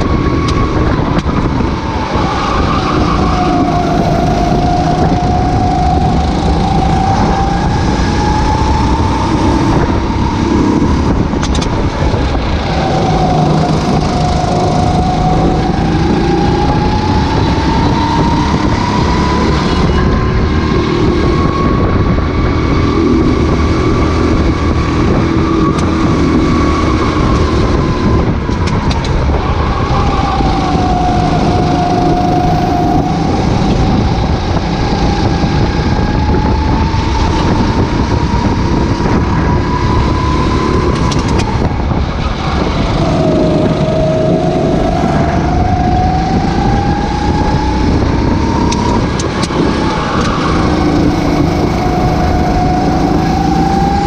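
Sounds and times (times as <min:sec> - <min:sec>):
racing kart engine revving: 0:00.0 - 0:54.0.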